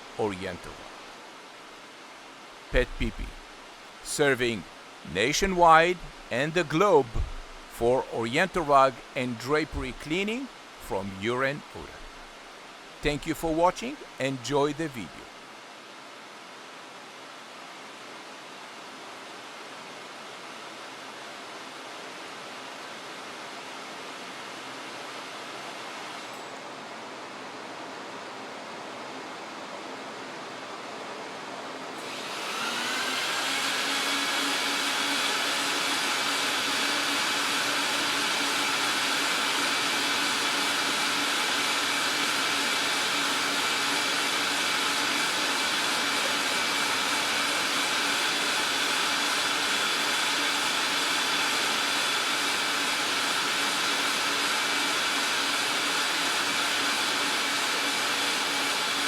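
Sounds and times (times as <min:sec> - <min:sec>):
electric fan motor whine: 0:00.0 - 0:07.8, 0:15.2 - 0:59.0
steady hiss: 0:00.0 - 0:20.1.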